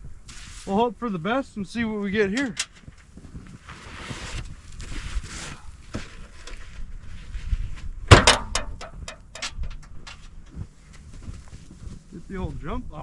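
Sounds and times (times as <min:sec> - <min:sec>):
loud knock: 0:08.1 - 0:09.0
clicks and rattles: 0:08.1 - 0:10.6.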